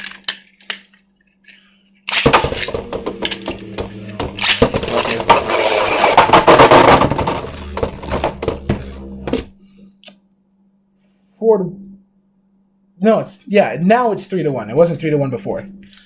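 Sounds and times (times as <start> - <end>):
spinning tops clashing: 2.1 - 9.4.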